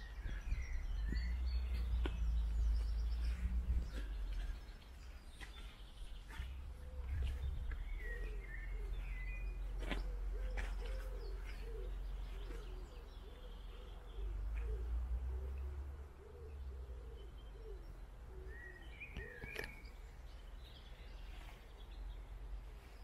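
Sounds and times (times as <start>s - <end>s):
small birds chirping: 0.0s - 23.0s
pigeon cooing: 6.7s - 19.7s.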